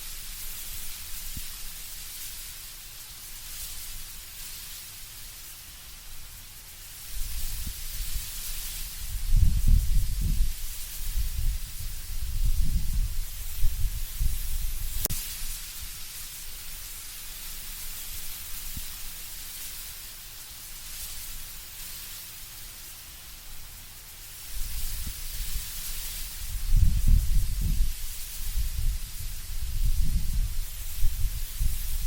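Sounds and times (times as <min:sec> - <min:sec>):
leaves rustling in wind: 0:00.0 - 0:32.0
low wind gusts rumbling: 0:09.0 - 0:15.1, 0:26.4 - 0:32.0.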